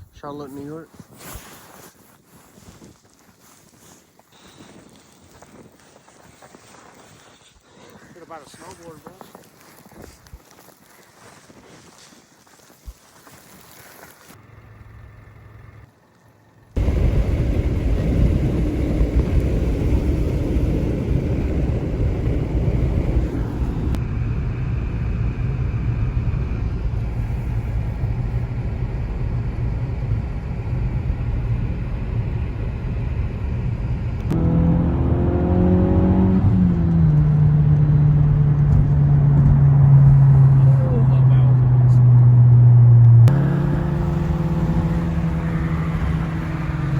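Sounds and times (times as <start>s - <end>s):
road noise: 13.7s - 46.9s
vehicle engine rumble: 14.2s - 46.9s.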